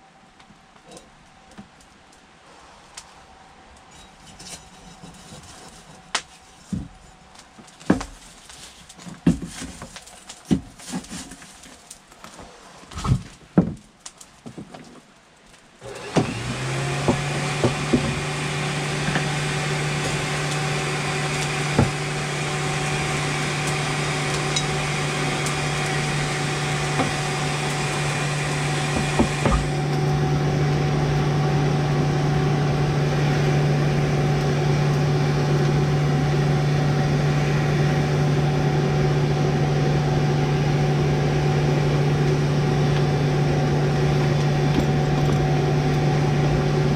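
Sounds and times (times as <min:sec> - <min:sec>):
electric motor humming: 0:15.8 - 0:46.9.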